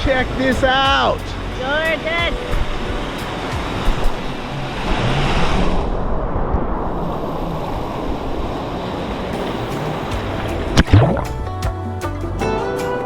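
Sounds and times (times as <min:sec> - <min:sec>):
faint background music: 0:00.0 - 0:04.6
ocean surf washing on shore: 0:00.0 - 0:11.4.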